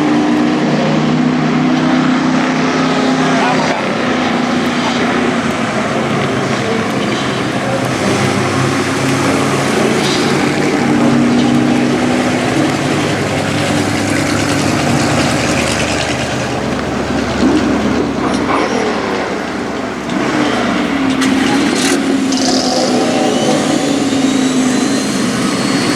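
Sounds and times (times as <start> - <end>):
race truck engines roaring: 0.0 - 25.9.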